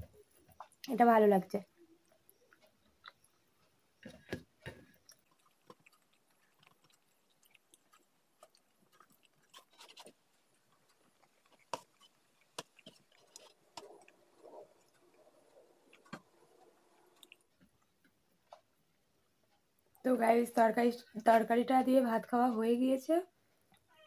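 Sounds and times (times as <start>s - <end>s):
person chewing food: 0.0s - 0.9s, 1.7s - 20.0s
lip smacks and clicks: 2.0s - 18.7s.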